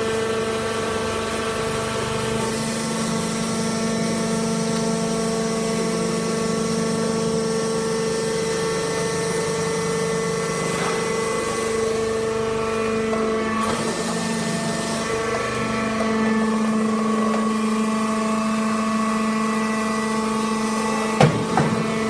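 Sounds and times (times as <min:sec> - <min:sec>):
baler mechanical hum: 0:00.0 - 0:22.0.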